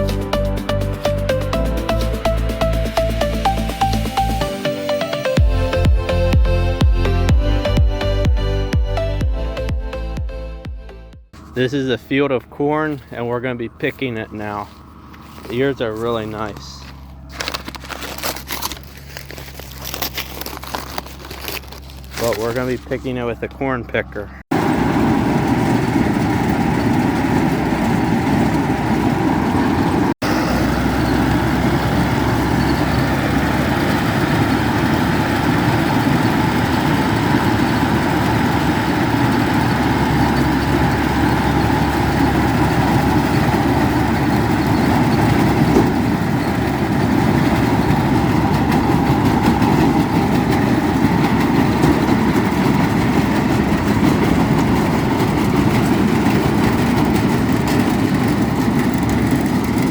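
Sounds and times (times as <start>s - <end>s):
corn picker working: 11.4s - 23.5s, 24.5s - 59.9s
tractor engine under load: 11.4s - 59.9s.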